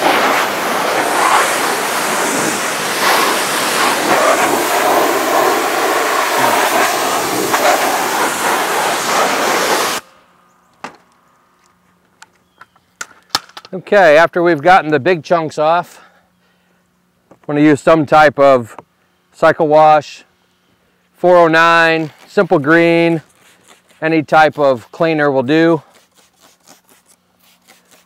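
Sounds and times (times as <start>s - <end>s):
pressure washer spraying: 0.0s - 10.0s.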